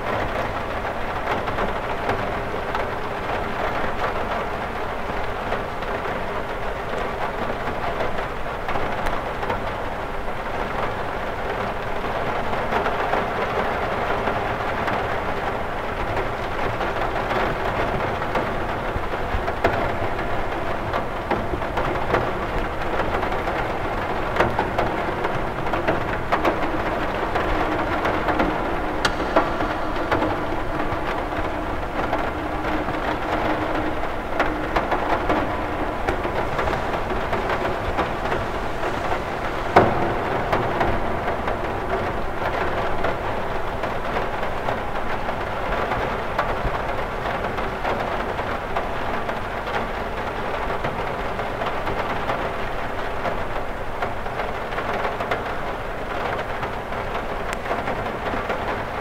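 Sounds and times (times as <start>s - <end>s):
rain ticking on a window: 0.0s - 59.0s.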